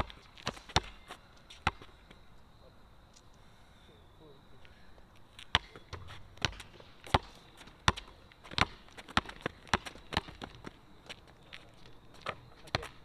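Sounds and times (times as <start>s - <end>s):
basketball bouncing on court: 0.0s - 1.9s, 5.5s - 10.8s.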